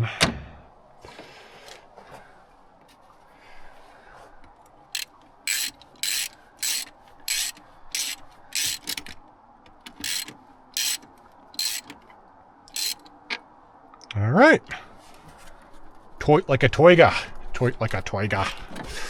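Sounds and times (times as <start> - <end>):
socket ratchet clicking: 5.0 - 9.2, 9.8 - 12.0, 12.7 - 13.1.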